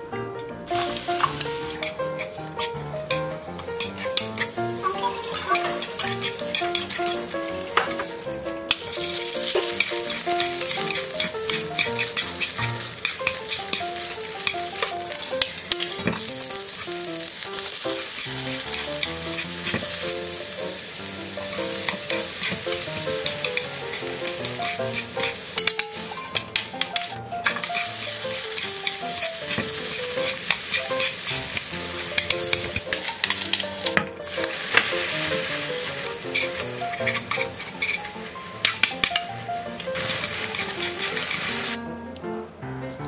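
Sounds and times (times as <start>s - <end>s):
light background music: 0.0s - 43.0s
vegetables sizzling in frying pan: 0.7s - 41.8s.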